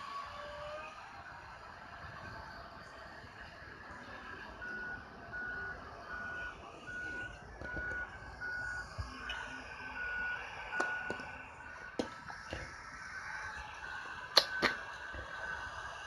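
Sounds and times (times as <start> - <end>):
truck low rumble: 0.0 - 16.0
truck backup alarm beeping: 4.0 - 16.0.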